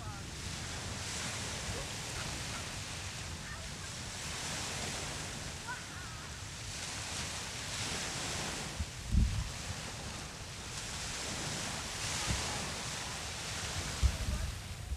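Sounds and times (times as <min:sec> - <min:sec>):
ocean surf washing: 0:00.0 - 0:14.9
wind rumbling on microphone: 0:06.4 - 0:14.9.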